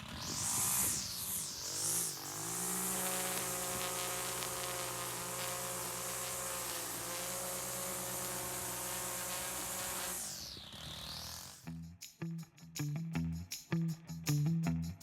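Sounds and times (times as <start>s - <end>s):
small engine running: 0.0s - 12.2s.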